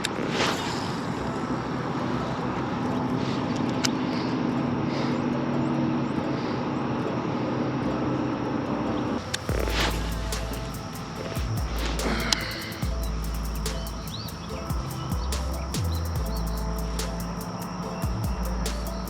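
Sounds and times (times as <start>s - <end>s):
rushing noise: 0.0s - 5.4s, 9.1s - 19.0s
engine drone: 0.0s - 19.0s
sharp click: 9.3s - 19.0s.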